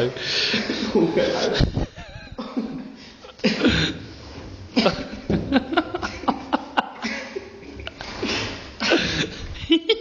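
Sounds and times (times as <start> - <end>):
person laughing: 0.8 - 2.8.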